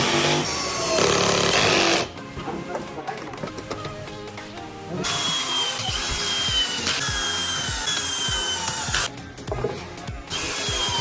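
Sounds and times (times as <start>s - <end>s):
power tool whining: 0.0s - 2.2s, 5.0s - 9.1s, 10.3s - 11.0s
background music with beat: 2.1s - 11.0s.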